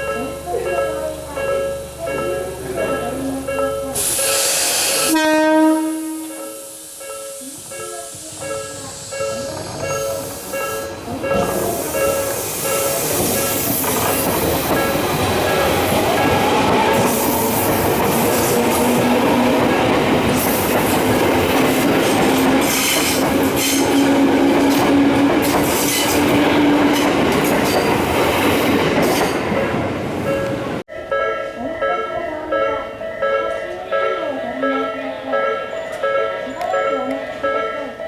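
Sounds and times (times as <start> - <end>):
train wheel and rail noise: 0.0 - 38.0.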